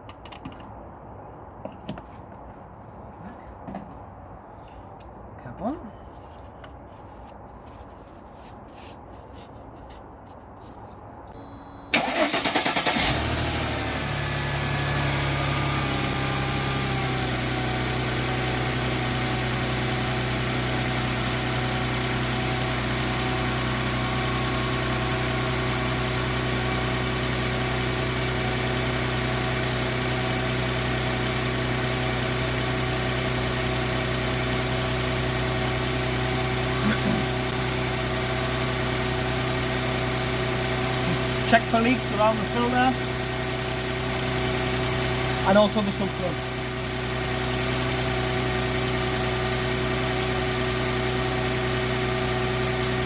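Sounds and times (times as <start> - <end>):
car engine starting and idling: 11.3 - 53.0.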